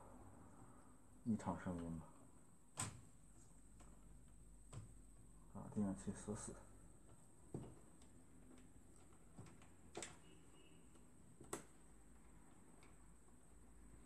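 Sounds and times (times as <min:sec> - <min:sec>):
faint clicks and taps: 0:07.0 - 0:10.3, 0:10.9 - 0:11.8.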